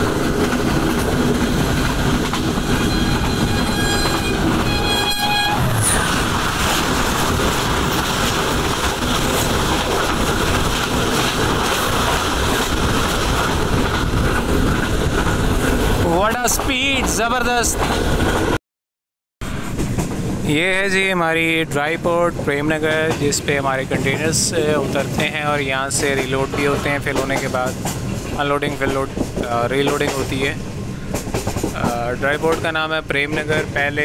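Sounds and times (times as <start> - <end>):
passing train: 0.0 - 18.6, 19.4 - 34.0
train wind and rolling wheels: 0.0 - 18.6, 19.4 - 34.0
locomotive horn: 2.6 - 6.2.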